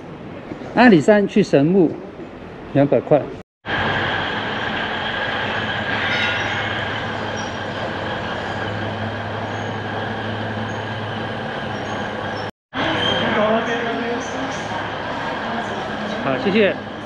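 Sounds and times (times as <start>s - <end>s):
high-pitched whine: 3.7s - 14.9s
train rumbling: 3.7s - 17.0s.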